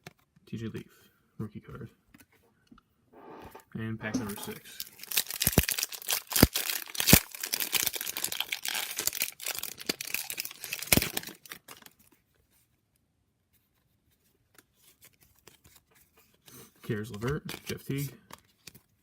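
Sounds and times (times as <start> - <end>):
wrapper tearing and crinkling: 4.4 - 12.2.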